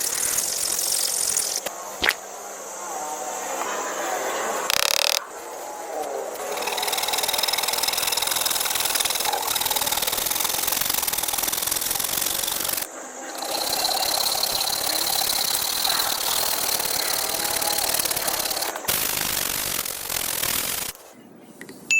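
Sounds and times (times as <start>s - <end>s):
power tool rattling and whining: 4.6s - 5.2s, 6.3s - 21.0s.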